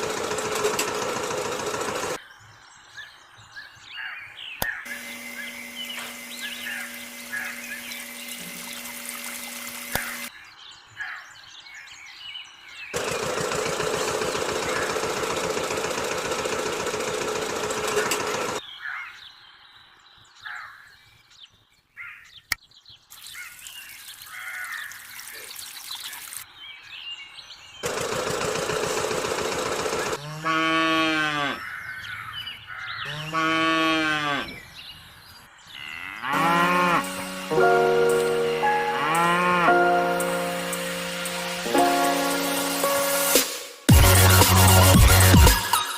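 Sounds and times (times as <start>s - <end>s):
small birds chirping: 2.2s - 15.4s, 17.0s - 27.9s, 31.4s - 36.3s
cow mooing: 30.2s - 31.7s, 33.1s - 34.6s, 35.7s - 40.2s.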